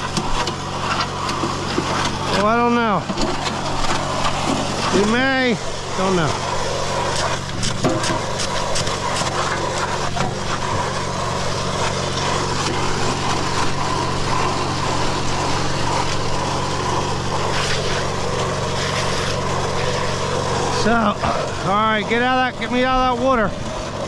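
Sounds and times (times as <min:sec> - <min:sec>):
concrete mixer churning: 0:00.0 - 0:24.0.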